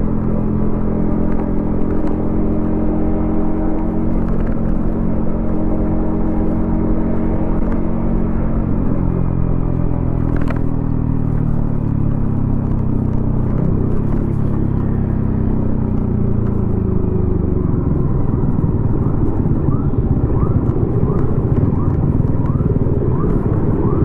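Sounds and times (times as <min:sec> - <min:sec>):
motorcycle engine at low revs: 0:00.0 - 0:24.0.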